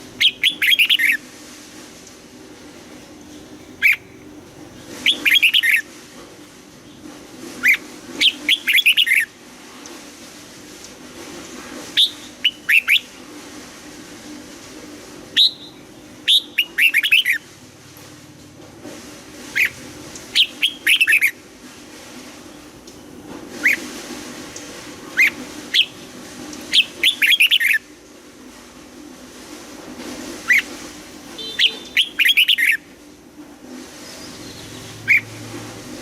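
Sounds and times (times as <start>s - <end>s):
bird singing whistled notes: 0.2s - 1.2s, 5.0s - 5.8s, 7.6s - 9.3s, 12.0s - 13.1s, 15.4s - 17.4s, 19.6s - 21.4s, 26.7s - 27.8s, 31.4s - 32.8s, 34.1s - 35.3s.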